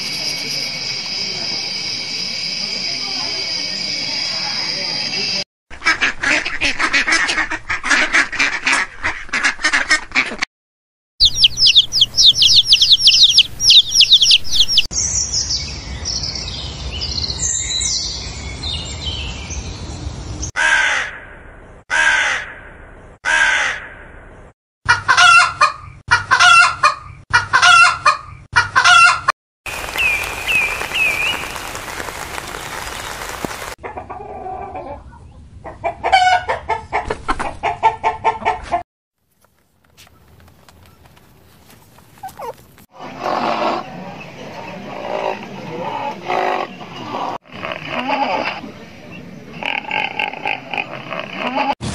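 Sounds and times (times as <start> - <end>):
ducks quacking: 5.8 - 10.4, 11.2 - 14.9
finch warbling song: 11.2 - 14.9
high bird chirping: 11.2 - 19.7, 29.7 - 33.2
crows cawing: 11.3 - 14.4, 20.6 - 21.1.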